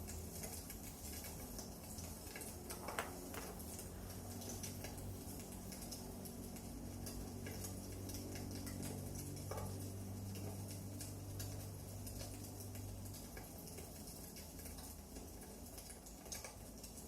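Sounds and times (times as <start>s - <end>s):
low steady hum: 0.0s - 17.0s
wood fire crackling: 0.0s - 17.0s.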